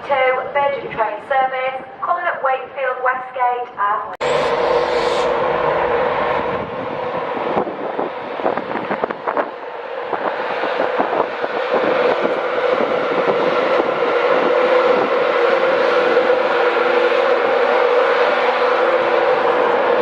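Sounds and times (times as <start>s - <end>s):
train motor hum: 4.2s - 20.0s.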